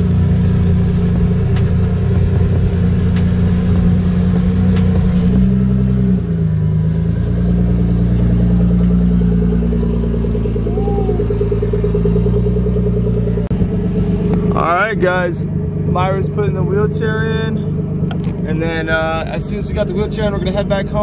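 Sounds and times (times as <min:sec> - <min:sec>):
sharp exhaust pops: 0:00.0 - 0:05.8
car engine idling: 0:00.0 - 0:21.0.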